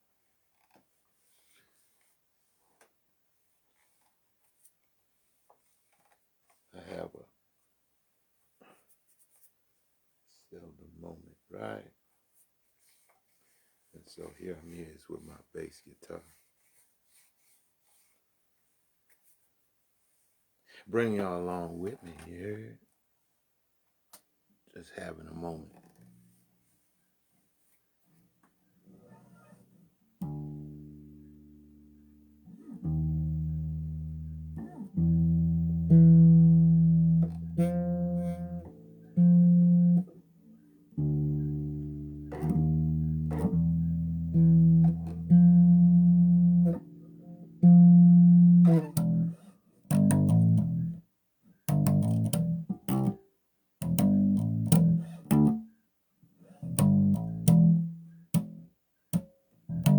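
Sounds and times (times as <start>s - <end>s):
solo bass guitar: 30.2s - 53.2s, 53.8s - 55.8s, 56.4s - 59.9s.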